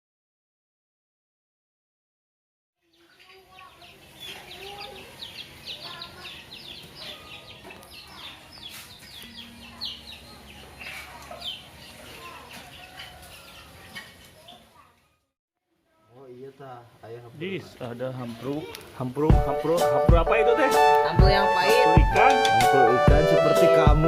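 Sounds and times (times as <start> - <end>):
chickens clucking: 2.8 - 14.9
chicks peeping: 2.8 - 14.9.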